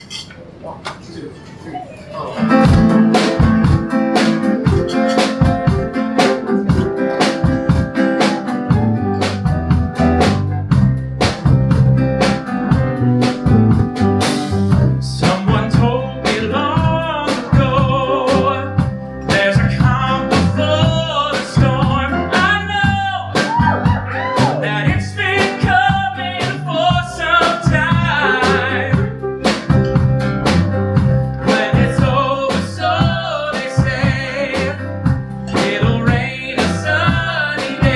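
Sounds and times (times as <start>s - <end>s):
live band playing folk-rock: 2.4s - 37.9s
person singing: 14.9s - 29.6s, 31.4s - 37.9s.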